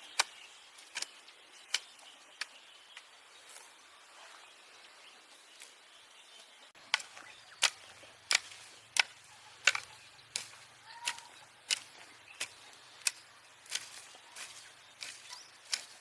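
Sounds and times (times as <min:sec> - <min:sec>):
hand tool striking: 0:06.9 - 0:16.0.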